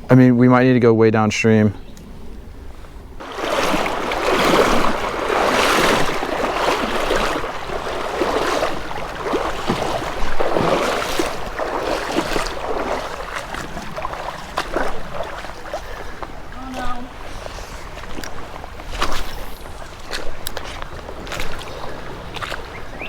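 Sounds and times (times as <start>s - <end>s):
legs wading through water: 3.2s - 23.0s.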